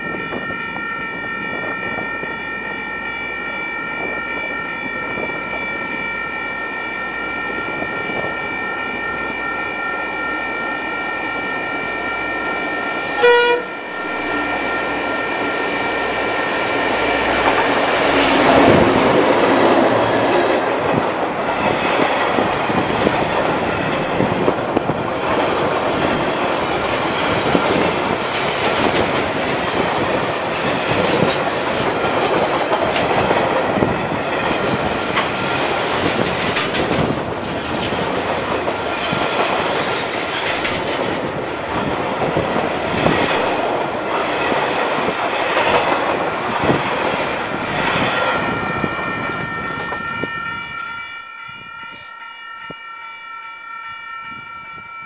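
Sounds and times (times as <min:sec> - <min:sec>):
wagons rumbling over rails: 0:03.9 - 0:50.9
locomotive engine passing: 0:08.4 - 0:40.1
train horn chord: 0:09.2 - 0:20.6, 0:48.6 - 0:55.0.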